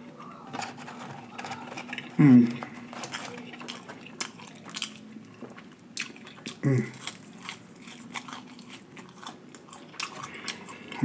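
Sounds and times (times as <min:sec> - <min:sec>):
person chewing: 0:00.6 - 0:11.0
hummed vocal sound: 0:02.2 - 0:02.7, 0:06.6 - 0:07.0.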